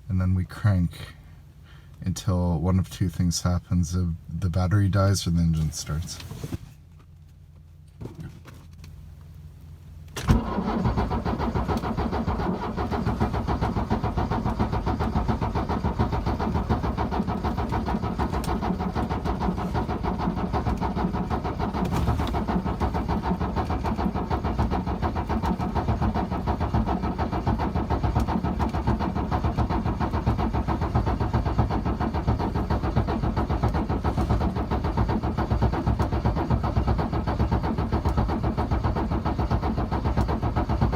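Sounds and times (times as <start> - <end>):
diesel engine running: 8.7 - 40.9
engine starter cranking: 10.0 - 40.9.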